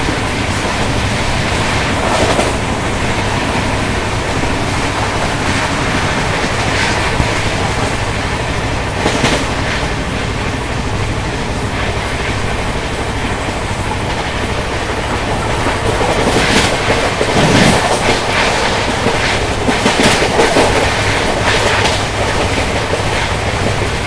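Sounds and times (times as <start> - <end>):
train wheels clattering over rail joints: 0.0 - 24.0.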